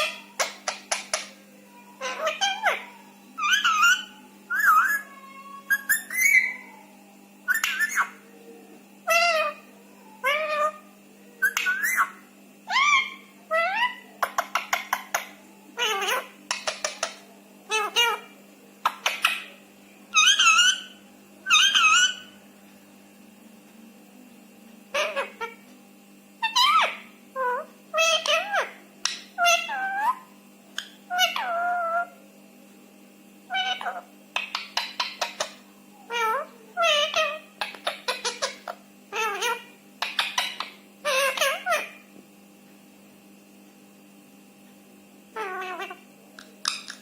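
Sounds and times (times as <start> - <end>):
parrot calling: 0.0 - 6.9, 7.5 - 8.3, 9.0 - 22.4, 24.9 - 25.6, 26.4 - 32.2, 33.5 - 42.1, 45.3 - 47.0
faint steady hum: 0.0 - 47.0
parrot clicks: 29.0 - 29.3, 40.0 - 40.8, 46.4 - 47.0.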